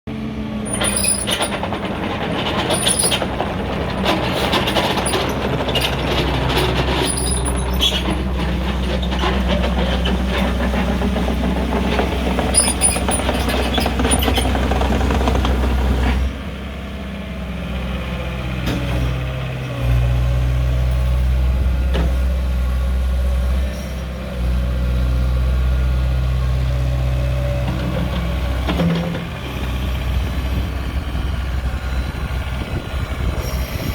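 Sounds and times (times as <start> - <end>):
excavator diesel engine running: 0.1 - 33.9
metallic clanks and knocks: 0.7 - 15.1.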